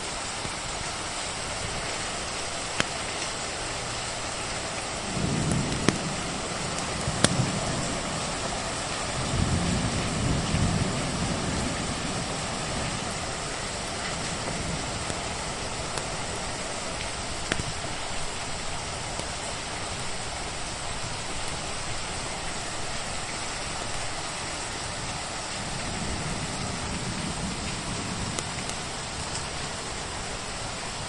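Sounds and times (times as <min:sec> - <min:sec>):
steady rain falling: 0:00.0 - 0:31.0
wood fire crackling: 0:04.6 - 0:09.6, 0:10.3 - 0:19.4, 0:27.7 - 0:29.8.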